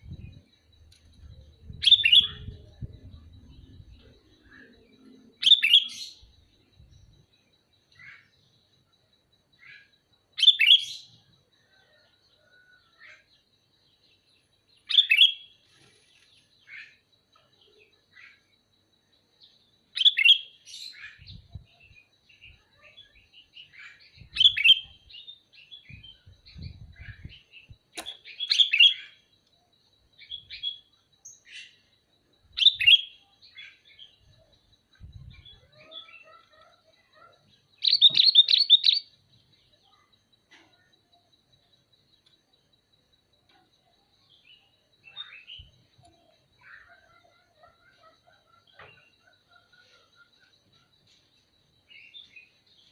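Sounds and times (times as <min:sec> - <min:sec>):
bulbul chirping: 0:37.8 - 0:39.1.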